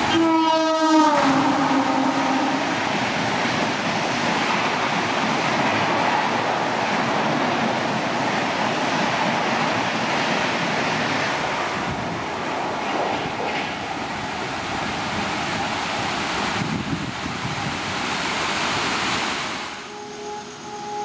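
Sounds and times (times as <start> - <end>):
train coaches rushing past: 0.0 - 21.0.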